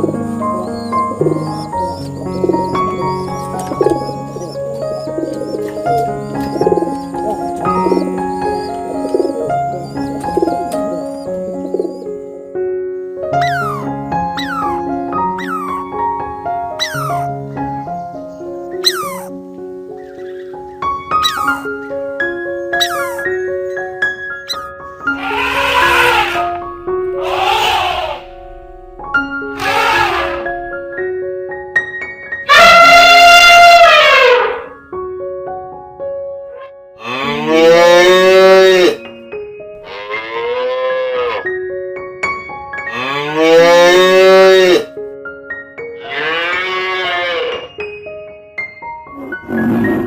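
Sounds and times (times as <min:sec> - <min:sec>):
background music: 0:00.0 - 0:50.0
long animal calls: 0:13.4 - 0:15.8, 0:16.8 - 0:17.3, 0:18.8 - 0:19.3, 0:22.8 - 0:23.3, 0:24.5 - 0:26.6, 0:27.2 - 0:28.4, 0:29.6 - 0:30.6
high-pitched falling call: 0:25.2 - 0:28.4.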